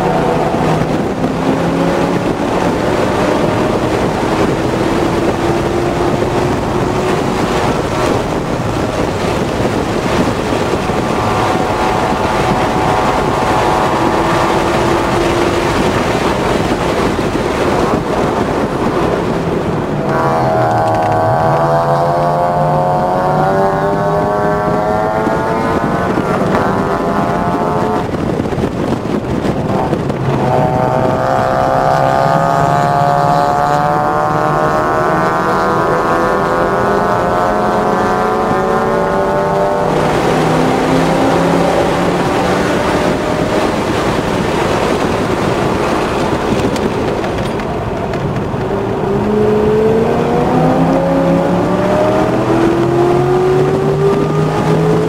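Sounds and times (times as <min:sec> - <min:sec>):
car engine revving: 0:00.0 - 0:55.0
tyre and road noise: 0:00.0 - 0:55.0.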